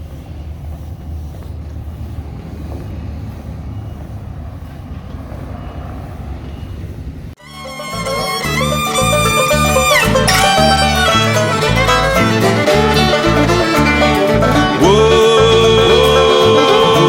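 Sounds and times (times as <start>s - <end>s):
street traffic rumble: 0.0s - 17.0s
music: 7.4s - 17.0s.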